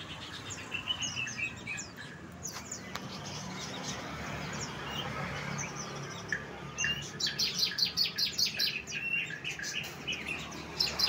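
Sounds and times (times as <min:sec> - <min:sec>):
songbird chirping and whistling: 0:06.2 - 0:11.0.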